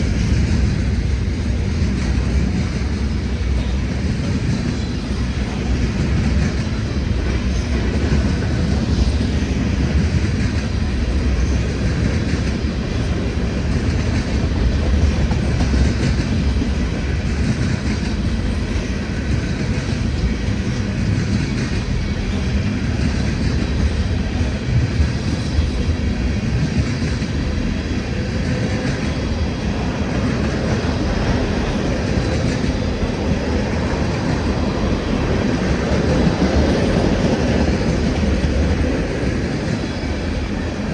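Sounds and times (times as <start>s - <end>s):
clickety-clack over rail joints: 0.0s - 40.9s
train wheels rumbling on rails: 0.0s - 40.9s.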